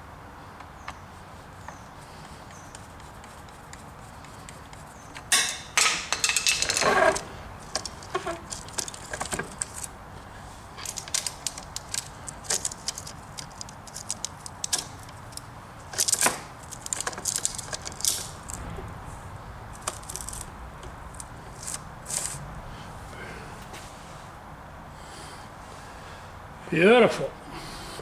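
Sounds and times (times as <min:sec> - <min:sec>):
saw chain clicking and rattling: 0:05.2 - 0:09.9, 0:10.7 - 0:18.6, 0:19.8 - 0:22.4.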